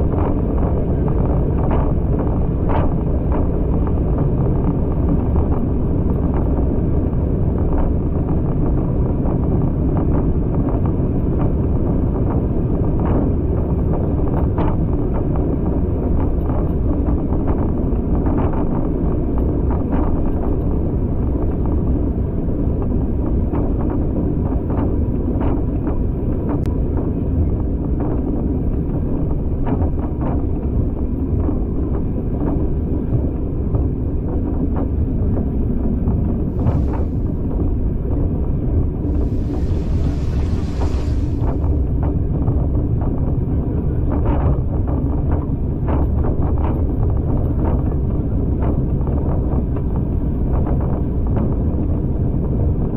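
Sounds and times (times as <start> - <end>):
train wheels rumbling on rails: 34.0 - 52.8
wind rushing: 36.4 - 43.8.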